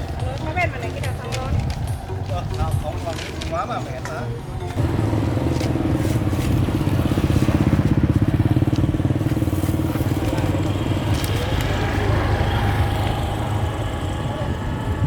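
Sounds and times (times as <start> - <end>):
small engine running: 4.8 - 15.0.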